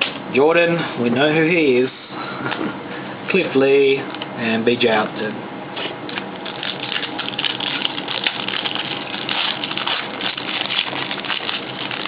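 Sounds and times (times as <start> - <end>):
foil wrapper crinkling: 6.1 - 12.0.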